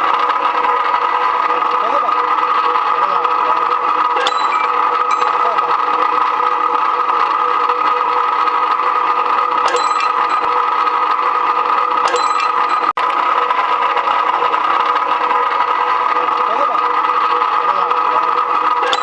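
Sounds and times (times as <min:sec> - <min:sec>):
machine motor whine: 0:00.0 - 0:19.0
metallic clinks: 0:04.2 - 0:05.8, 0:09.6 - 0:11.0, 0:12.0 - 0:13.0.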